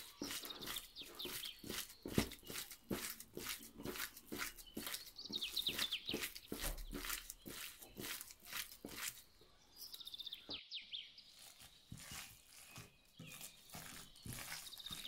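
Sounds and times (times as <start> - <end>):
small bird singing: 0.0 - 15.0.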